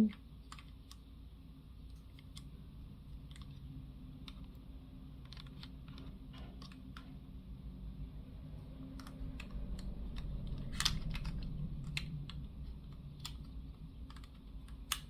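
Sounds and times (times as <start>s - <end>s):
plastic pieces clicking: 0.0s - 1.0s, 5.2s - 7.1s, 8.9s - 15.0s.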